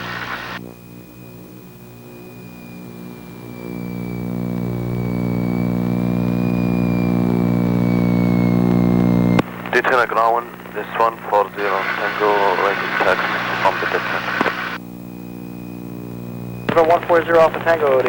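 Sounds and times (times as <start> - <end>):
propeller airplane engines running: 0.0 - 9.7.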